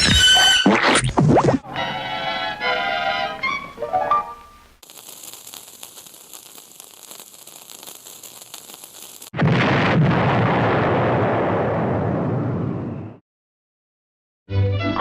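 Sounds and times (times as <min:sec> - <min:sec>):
crackling hiss: 0:02.4 - 0:09.4
loud blast with heavy rumble: 0:09.4 - 0:13.2.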